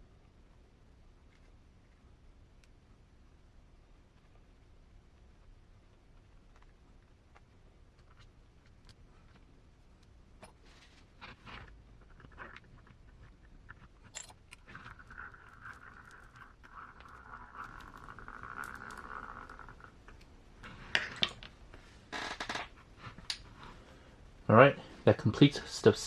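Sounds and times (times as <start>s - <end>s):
light scraping of small parts: 10.4s - 22.0s.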